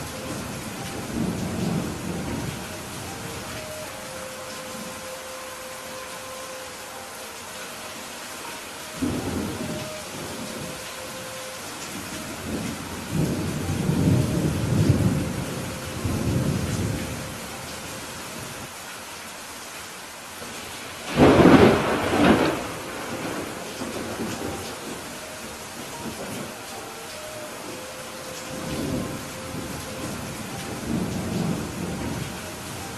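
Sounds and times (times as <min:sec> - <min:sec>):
thunder rumbling: 0:00.0 - 0:04.1, 0:08.9 - 0:17.7, 0:21.0 - 0:32.9
steady rain: 0:00.0 - 0:32.9.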